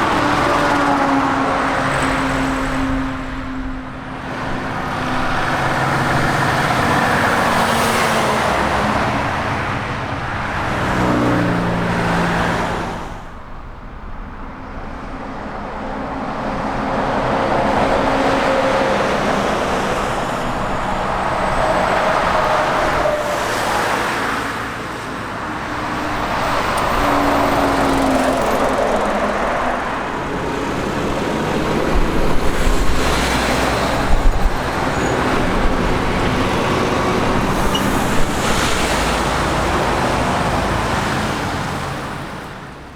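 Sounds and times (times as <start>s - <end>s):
heavy trucks passing: 0.0s - 42.9s.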